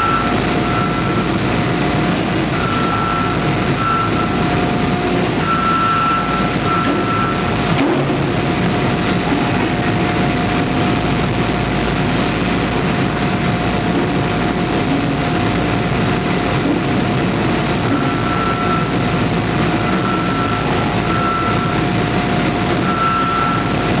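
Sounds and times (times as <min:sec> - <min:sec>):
constant machine whine: 0:00.0 - 0:24.0
forging press and machinery running: 0:00.0 - 0:24.0
warning beeper short beeps: 0:22.8 - 0:23.9.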